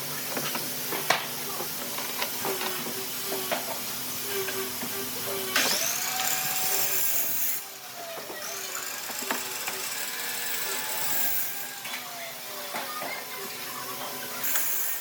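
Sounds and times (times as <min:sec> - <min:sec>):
power tool motor whine: 0:05.6 - 0:12.2.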